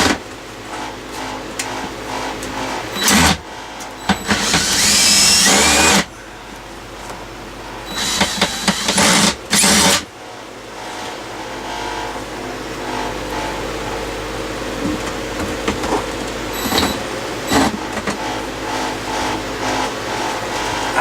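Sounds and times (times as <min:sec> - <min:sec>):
cordless drill driving screws: 0:04.0 - 0:06.1, 0:07.9 - 0:10.0.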